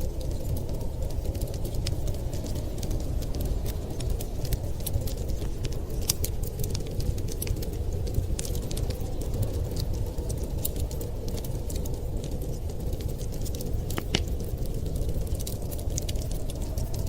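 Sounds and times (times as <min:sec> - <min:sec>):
low rumble of fire: 0:00.0 - 0:17.0
wood fire crackling and popping: 0:00.0 - 0:17.0.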